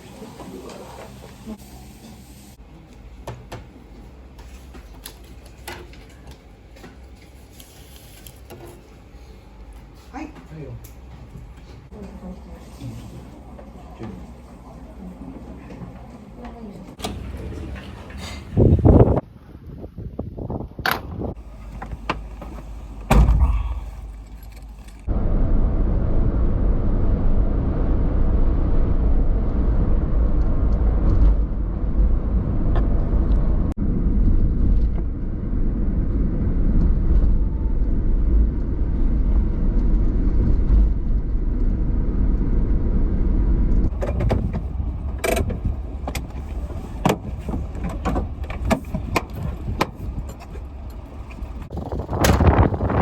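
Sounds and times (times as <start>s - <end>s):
car road and engine rumble: 20.4s - 53.0s
sharp thump: 23.1s - 23.9s.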